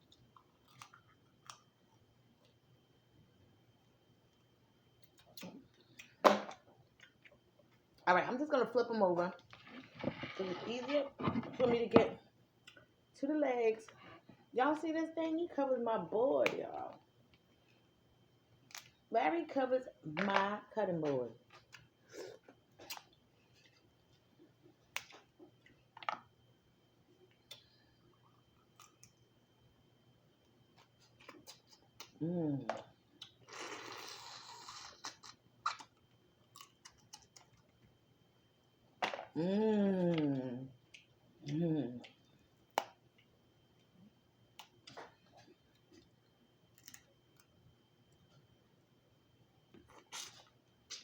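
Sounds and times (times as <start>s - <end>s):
close-miked eating clicks and smacks: 0.0s - 2.6s, 4.2s - 8.0s, 12.6s - 12.9s, 27.2s - 29.3s, 35.0s - 38.0s, 40.8s - 48.5s
lobster shell cracking: 46.8s - 47.5s.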